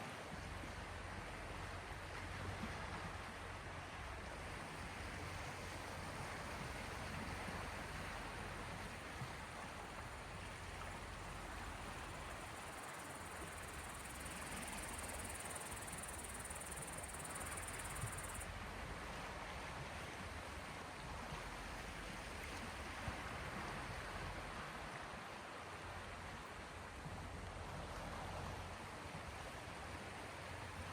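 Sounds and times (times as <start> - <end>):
sea waves lapping: 4.6 - 20.0.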